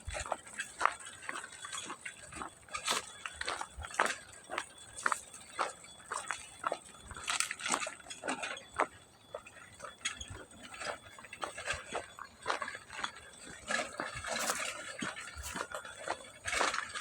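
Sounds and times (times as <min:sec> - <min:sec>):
footsteps crunching on stones: 0:00.0 - 0:17.0.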